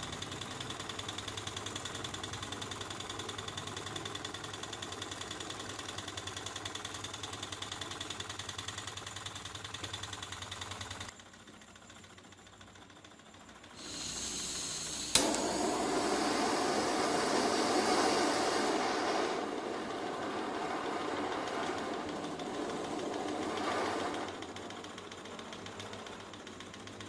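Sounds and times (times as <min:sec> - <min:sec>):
stirling engine clattering: 0:13.9 - 0:27.0
sharp click: 0:14.5 - 0:15.5
steady rushing noise: 0:15.4 - 0:24.9.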